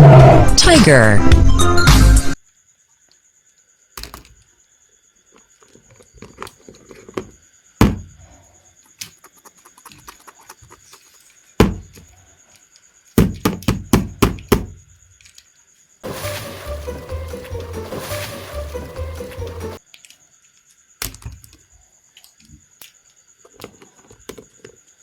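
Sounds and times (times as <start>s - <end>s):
plastic toys clattering: 5.5s - 7.4s, 15.2s - 15.5s.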